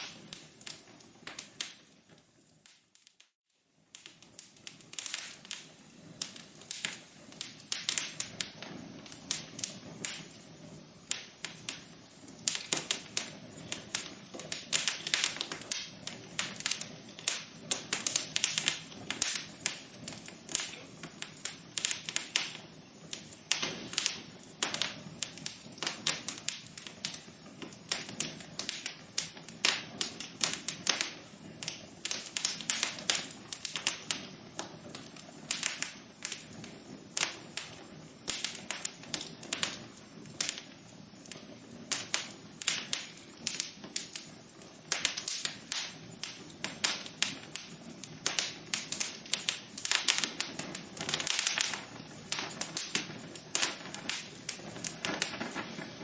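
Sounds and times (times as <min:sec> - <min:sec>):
low hiss of burning: 0:00.0 - 0:56.0
wood fire crackling: 0:00.0 - 0:56.0.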